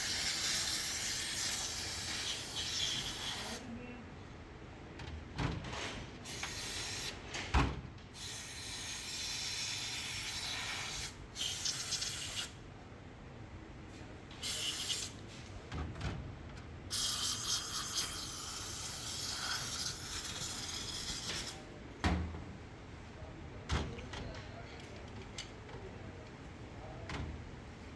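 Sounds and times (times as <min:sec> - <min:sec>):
aerosol spray hissing: 0:00.0 - 0:03.6.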